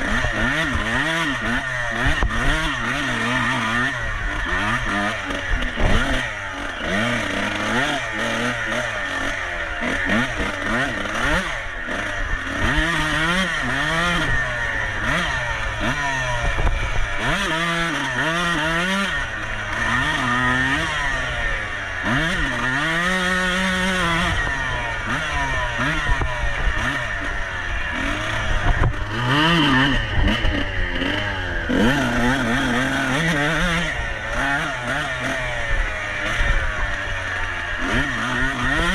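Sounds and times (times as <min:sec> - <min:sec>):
clatter: 0:00.0 - 0:38.9
motorcycle engine revving: 0:00.0 - 0:38.9
steady rushing noise: 0:26.1 - 0:33.1.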